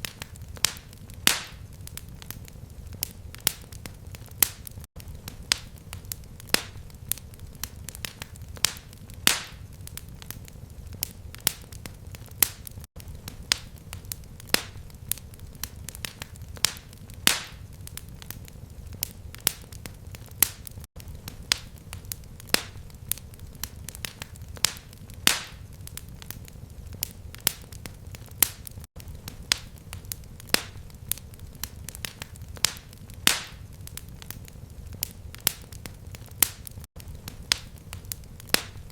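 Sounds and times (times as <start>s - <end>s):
fireplace fire crackling: 0.0s - 38.9s.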